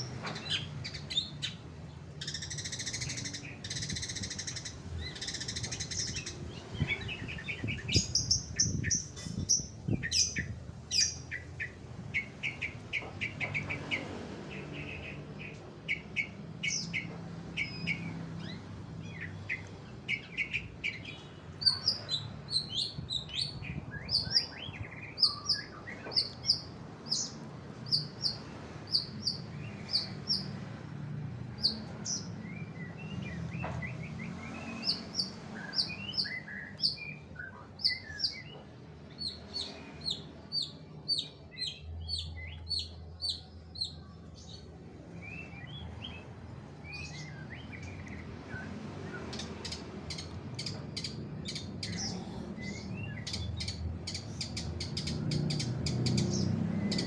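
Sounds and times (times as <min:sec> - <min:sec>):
bird chirping and clicking: 0:12.2 - 0:14.1, 0:47.8 - 0:48.3, 0:49.3 - 0:52.2, 0:53.2 - 0:57.0.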